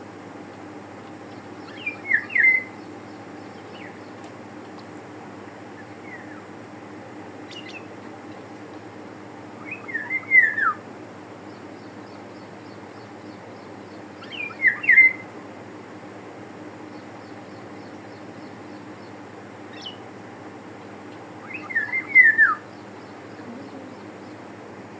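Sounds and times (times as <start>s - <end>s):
steady low hum: 0.0s - 24.9s
small birds chirping: 0.5s - 24.9s
oriole fluting whistles: 9.6s - 10.8s, 21.5s - 22.6s.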